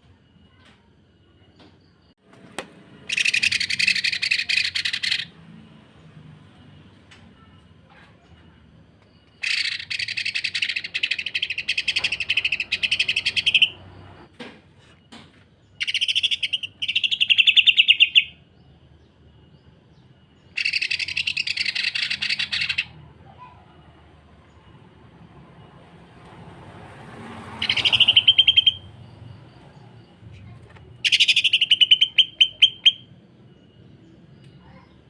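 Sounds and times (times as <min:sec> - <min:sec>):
bird singing rattling phrases: 0:03.0 - 0:26.0, 0:27.0 - 0:35.0.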